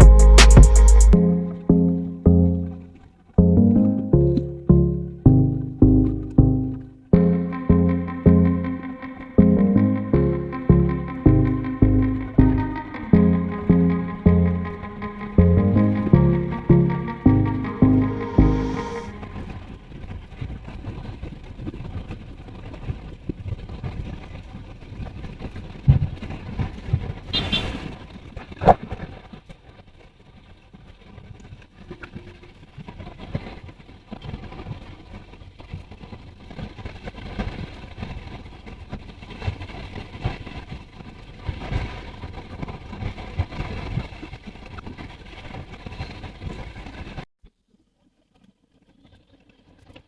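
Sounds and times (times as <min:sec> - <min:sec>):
short sharp high sound: 0:04.3 - 0:19.5.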